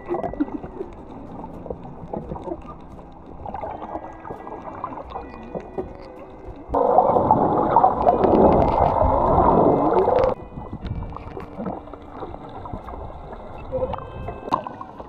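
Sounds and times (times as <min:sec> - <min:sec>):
underwater rushing and bubbling: 0:00.0 - 0:15.0
water lapping: 0:00.0 - 0:15.0.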